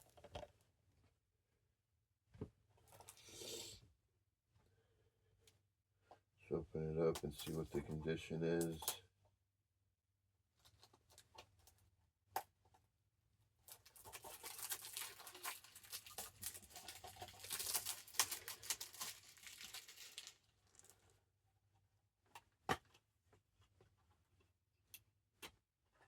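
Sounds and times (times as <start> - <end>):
plastic shrink-wrap crinkling: 13.7 - 21.1.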